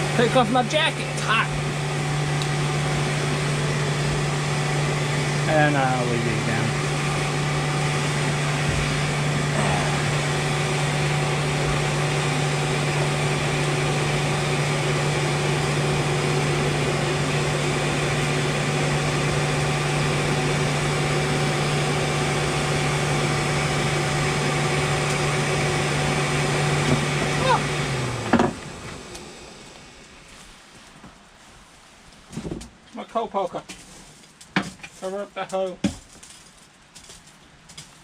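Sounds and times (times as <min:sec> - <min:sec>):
electric blower motor hum: 0:00.0 - 0:30.4.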